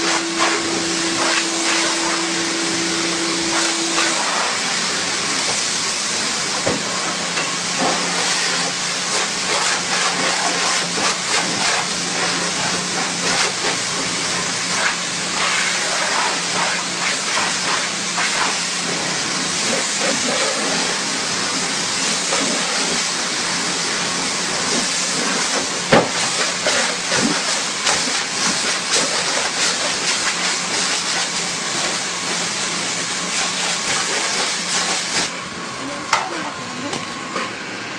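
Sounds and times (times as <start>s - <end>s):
spray crackling: 0.0s - 5.8s
machine humming: 0.0s - 15.4s
high-pressure water jet hissing: 0.0s - 37.3s.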